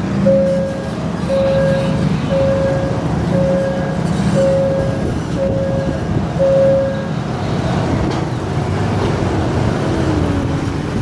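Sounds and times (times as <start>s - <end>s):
train rumbling past: 0.0s - 11.0s
level crossing beeps: 0.2s - 7.1s.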